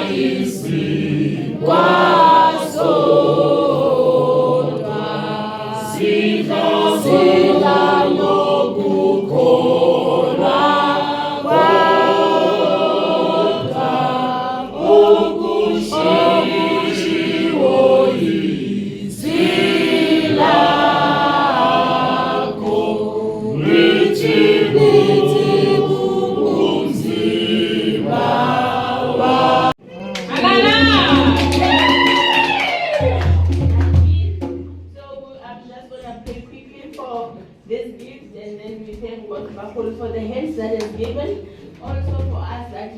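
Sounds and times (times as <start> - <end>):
choir singing: 0.0 - 29.8.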